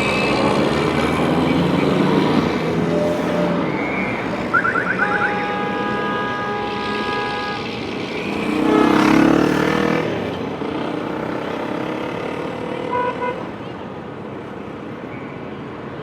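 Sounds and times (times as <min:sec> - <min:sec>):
street traffic: 0:00.0 - 0:16.0
siren horn-like tone: 0:02.8 - 0:07.7
police siren chirps: 0:03.2 - 0:05.6
vehicle passing loudly: 0:06.6 - 0:12.9.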